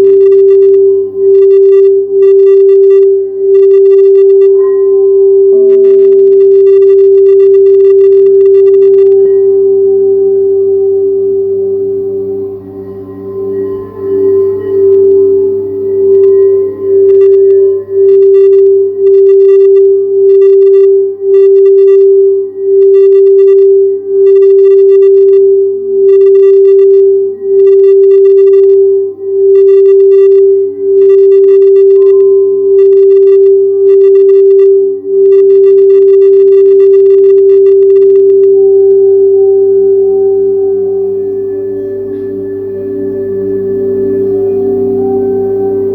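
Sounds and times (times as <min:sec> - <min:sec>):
singing bowl sustained tone: 0:00.0 - 0:02.2, 0:04.6 - 0:06.7, 0:09.1 - 0:19.0, 0:30.4 - 0:31.0, 0:32.0 - 0:32.8, 0:38.6 - 0:45.9.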